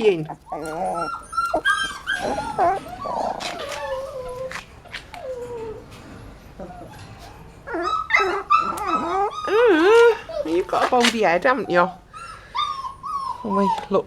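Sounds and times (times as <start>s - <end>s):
puppies whimpering and yipping: 0.0s - 14.0s.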